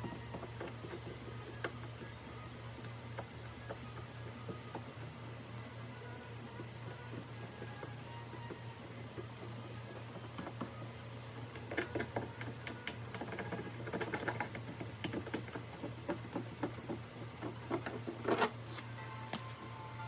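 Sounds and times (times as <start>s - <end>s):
faint background music: 0.0s - 20.0s
light clicking and tapping: 11.4s - 18.5s.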